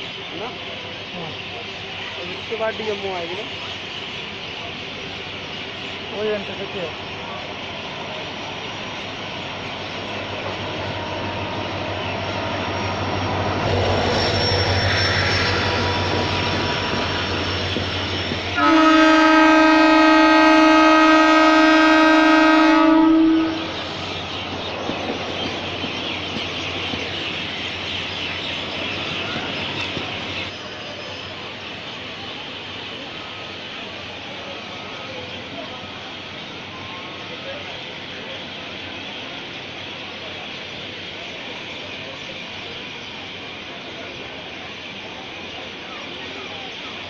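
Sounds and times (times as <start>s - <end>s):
train running on rails: 0.0s - 47.0s
train horn blast: 14.0s - 23.9s.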